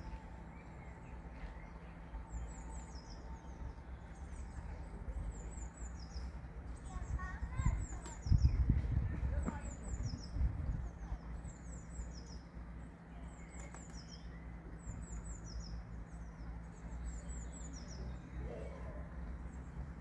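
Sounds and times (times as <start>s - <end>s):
low outdoor rumble: 0.0s - 20.0s
songbird chirping: 0.0s - 20.0s.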